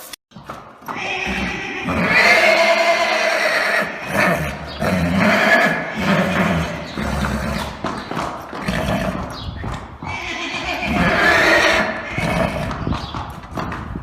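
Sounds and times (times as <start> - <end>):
horses neighing and whinnying: 0.8 - 14.0.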